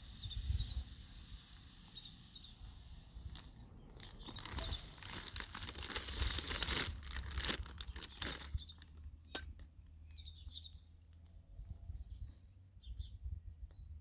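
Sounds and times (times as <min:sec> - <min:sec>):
birdseed rattling: 0:03.2 - 0:09.4
bag rustling: 0:03.4 - 0:09.0.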